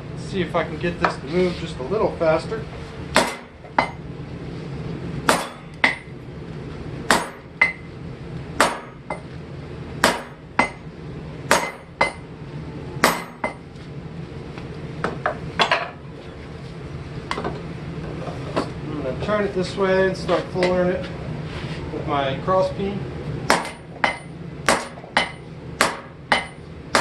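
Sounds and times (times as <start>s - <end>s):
hammer striking steel on anvil: 3.2s - 4.0s, 5.3s - 6.1s, 7.1s - 7.9s, 8.6s - 9.2s, 10.0s - 10.9s, 11.5s - 12.2s, 13.0s - 13.6s, 23.5s - 27.0s.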